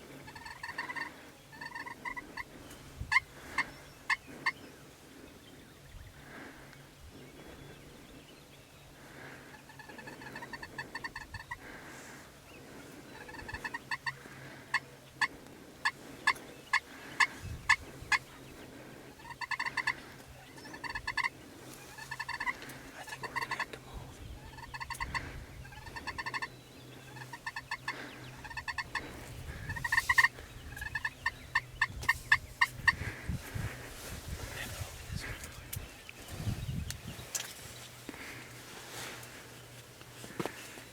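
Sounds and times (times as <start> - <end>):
turkey yelping and clucking: 0.2 - 2.5, 9.5 - 11.6, 13.2 - 18.4, 19.2 - 23.7, 24.4 - 33.0.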